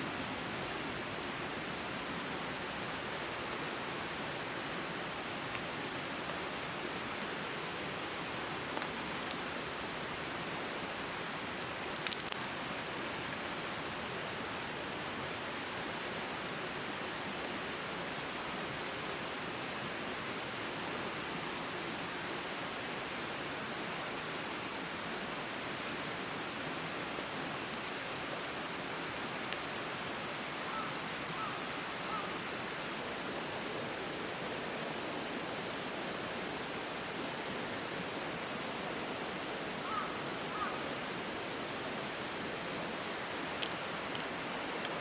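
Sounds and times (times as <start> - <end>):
rain falling: 0.0 - 45.0
faint sharp clicks: 11.9 - 12.5, 43.6 - 45.0.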